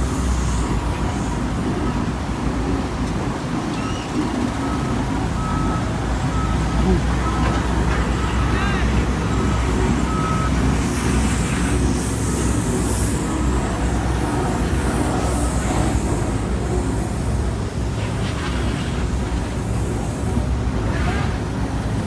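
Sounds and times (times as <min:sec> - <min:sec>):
heavy diesel machinery rumbling: 0:00.0 - 0:22.0
road traffic: 0:00.0 - 0:22.0.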